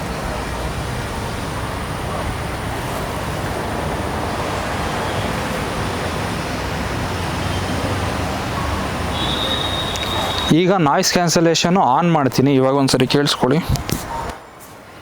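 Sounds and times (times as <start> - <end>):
low traffic-like rumble: 0.0 - 15.0.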